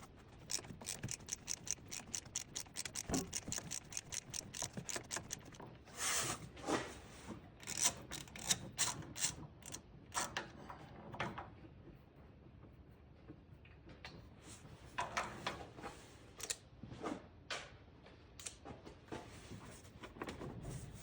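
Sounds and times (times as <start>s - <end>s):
ratchet wrench clicking: 0.0s - 5.6s, 7.6s - 10.3s.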